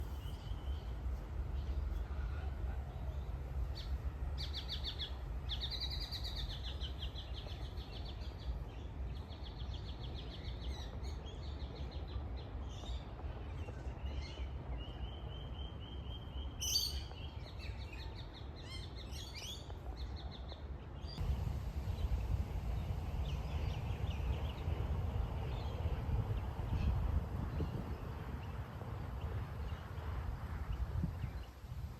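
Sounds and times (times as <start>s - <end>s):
steady low rumble: 21.2s - 31.9s.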